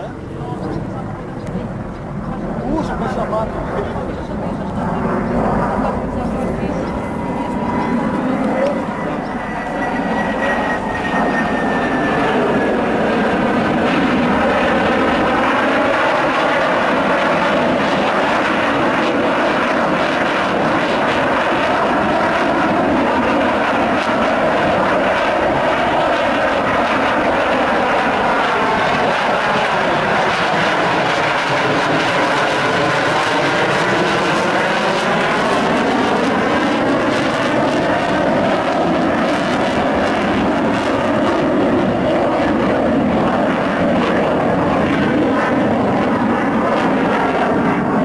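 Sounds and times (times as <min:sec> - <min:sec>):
fighter jet engine noise: 0:00.0 - 0:48.0.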